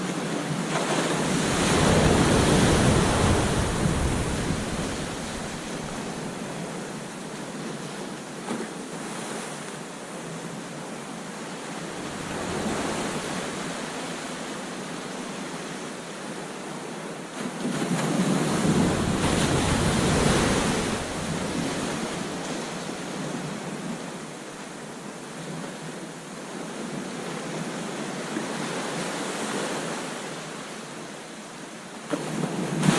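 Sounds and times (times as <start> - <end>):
ocean surf washing onto beach: 0.0 - 30.3, 32.1 - 32.9
wind on microphone: 0.1 - 8.0, 11.7 - 15.9, 17.6 - 24.6.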